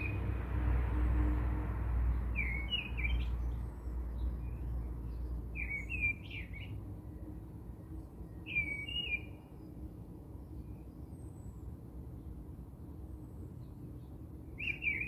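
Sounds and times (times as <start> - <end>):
birds chirping: 2.3 - 6.8, 13.6 - 15.0.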